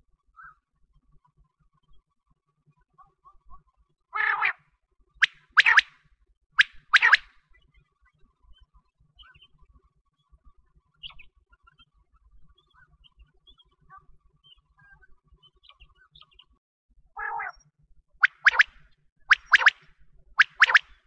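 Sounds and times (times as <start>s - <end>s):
small birds chirping: 8.4s - 9.7s, 11.0s - 16.6s, 17.2s - 17.6s, 18.2s - 18.7s, 19.3s - 19.8s, 20.4s - 21.0s.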